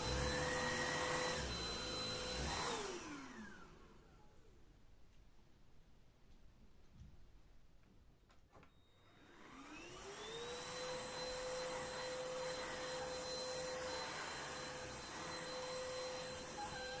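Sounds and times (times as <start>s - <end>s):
vacuum cleaner motor humming: 0.0s - 4.1s, 9.0s - 17.0s.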